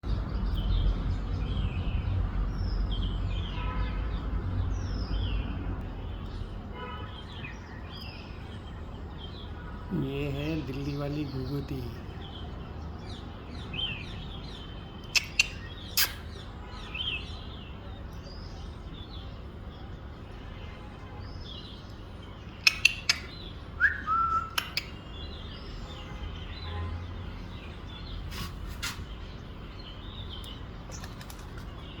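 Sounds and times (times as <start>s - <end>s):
small birds chirping: 0.0s - 32.0s
sharp clicks: 15.1s - 16.2s, 22.6s - 23.4s, 24.5s - 25.0s, 30.4s - 31.9s.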